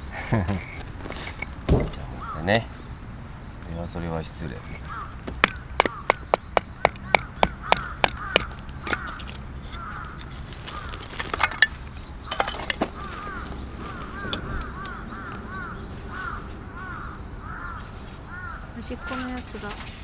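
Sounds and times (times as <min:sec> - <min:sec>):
crows cawing: 0:01.7 - 0:03.1, 0:04.6 - 0:19.8
sharp clicks: 0:04.6 - 0:12.4.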